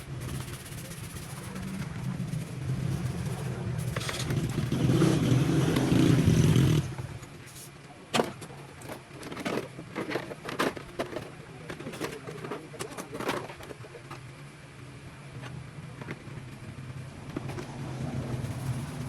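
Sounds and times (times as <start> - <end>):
motor droning: 0.0 - 7.3, 15.6 - 19.0.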